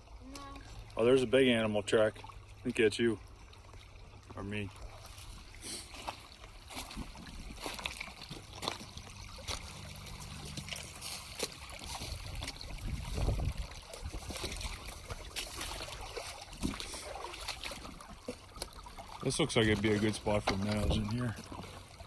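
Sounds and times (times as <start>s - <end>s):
creek water trickling: 0.0s - 22.0s.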